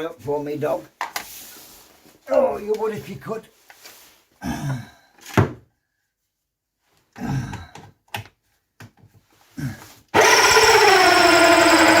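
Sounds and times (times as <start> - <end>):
person grunting: 4.4 - 5.0, 7.2 - 7.7
cordless drill motor running: 10.2 - 12.0.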